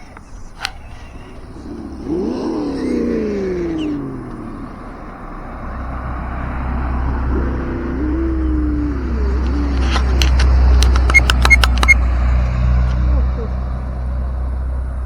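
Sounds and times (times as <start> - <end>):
sharp clicks: 9.3 - 13.0.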